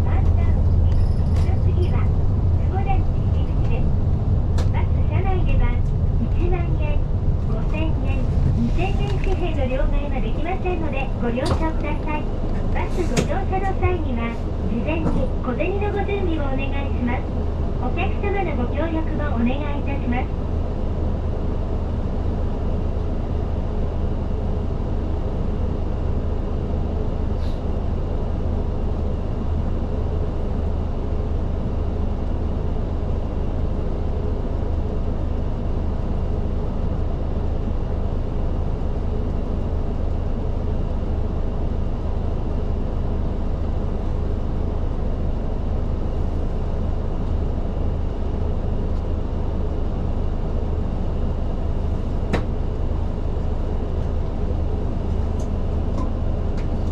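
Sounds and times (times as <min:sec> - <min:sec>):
cabin hum: 0:00.0 - 0:23.4
bus engine drone: 0:00.0 - 0:56.9.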